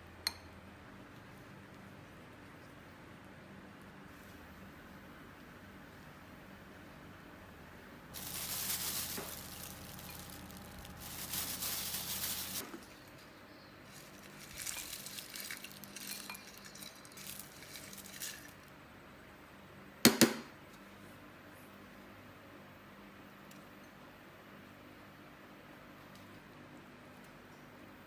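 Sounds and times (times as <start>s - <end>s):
rustling and brushing: 8.1s - 18.7s.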